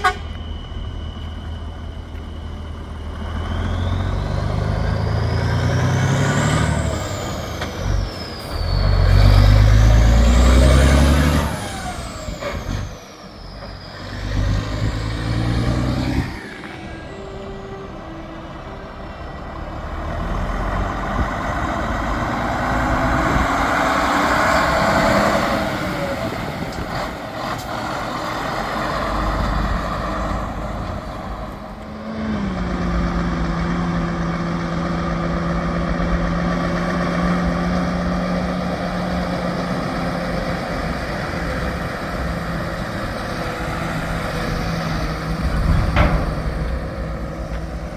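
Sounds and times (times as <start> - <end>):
high rising and falling whistle: 0.0 - 18.2
steady engine drone: 0.0 - 47.9
heavy trucks revving past: 2.1 - 47.9.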